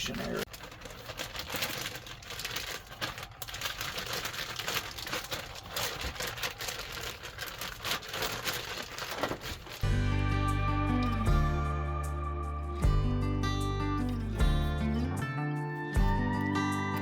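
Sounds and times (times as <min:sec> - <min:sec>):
plastic packaging crinkling: 0:00.0 - 0:09.9
acoustic guitar music: 0:09.8 - 0:17.0.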